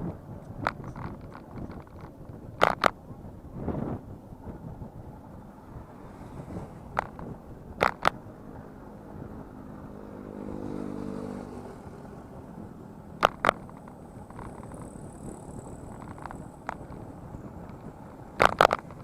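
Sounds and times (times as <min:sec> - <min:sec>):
wind and road noise: 0:00.0 - 0:19.0
vehicle engine passing: 0:05.2 - 0:19.0.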